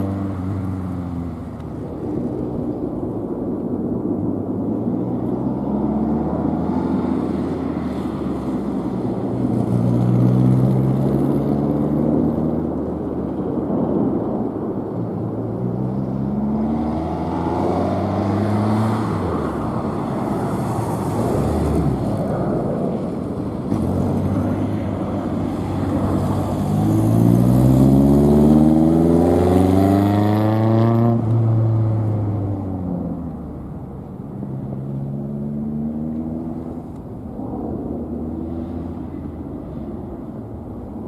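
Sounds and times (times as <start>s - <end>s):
car engine revving: 23.6s - 33.7s.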